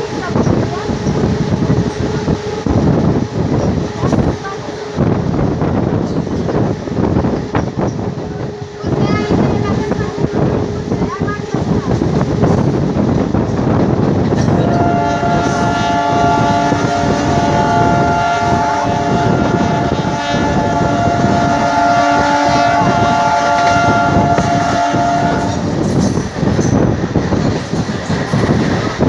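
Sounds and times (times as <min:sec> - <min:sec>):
train rumbling clatter: 0:00.0 - 0:29.0
locomotive horn blast: 0:14.4 - 0:25.8.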